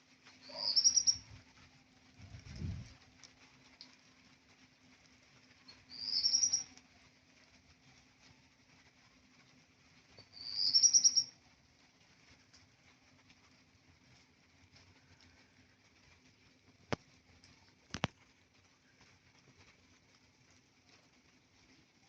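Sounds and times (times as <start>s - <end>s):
bird singing: 0.4s - 1.2s, 5.9s - 6.7s, 10.2s - 11.3s.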